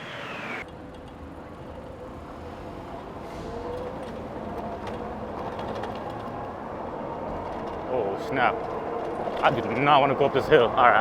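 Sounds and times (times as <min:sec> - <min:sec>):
faint electric motor whine: 0:00.0 - 0:00.6
wind and road noise: 0:00.0 - 0:11.0.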